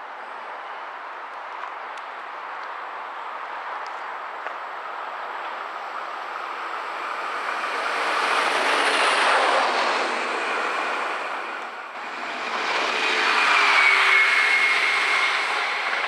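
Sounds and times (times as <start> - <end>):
train passing by: 0.0 - 16.0.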